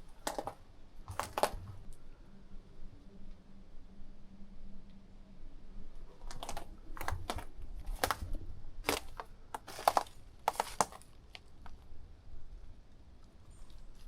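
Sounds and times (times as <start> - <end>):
footsteps crunching: 0.1 - 1.8, 6.2 - 11.2.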